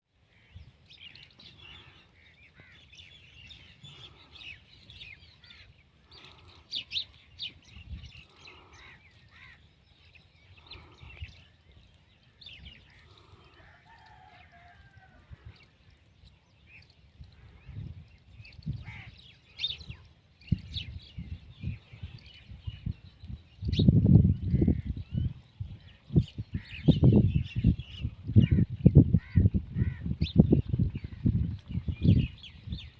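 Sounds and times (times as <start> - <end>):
small birds chirping: 0.2 - 32.9.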